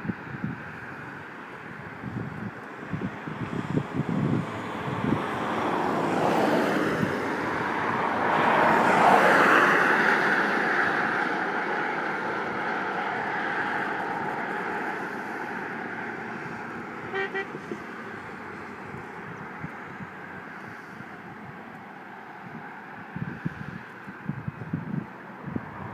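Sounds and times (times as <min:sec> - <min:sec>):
vehicle passing by: 0:03.0 - 0:25.9
short horn toots: 0:17.1 - 0:17.8.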